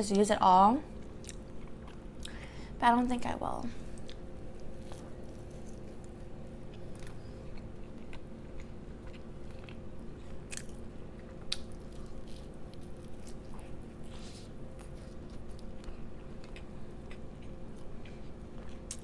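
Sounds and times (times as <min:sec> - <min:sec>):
low electrical hum: 0:00.0 - 0:19.0
chewing and biting food: 0:01.0 - 0:02.4, 0:03.9 - 0:19.0
crisp crunches: 0:11.4 - 0:16.6.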